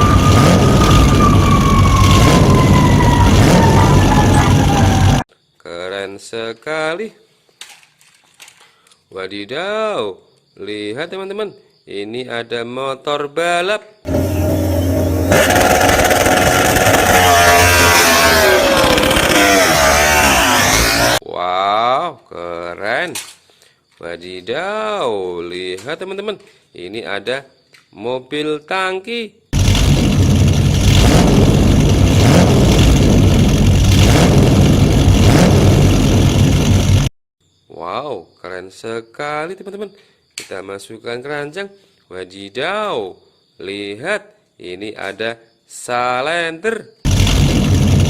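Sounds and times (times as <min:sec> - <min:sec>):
racing motorcycle engine revving: 0:00.0 - 0:05.2, 0:14.1 - 0:21.2, 0:29.6 - 0:37.1.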